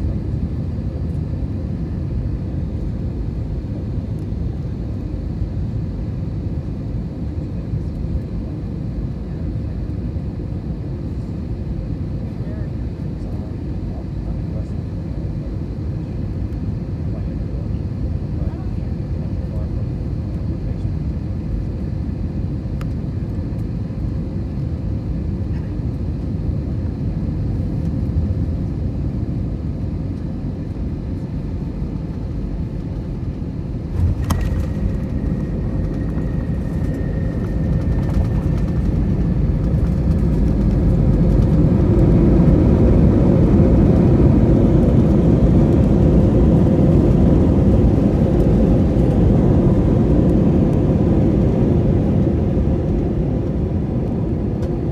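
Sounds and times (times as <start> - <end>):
airplane cabin rumble: 0.0 - 54.9
jet engine reverse thrust: 31.4 - 54.9.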